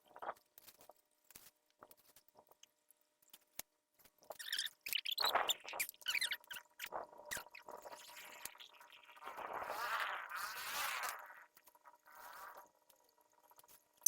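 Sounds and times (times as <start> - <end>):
short squeaks: 4.3 - 7.7.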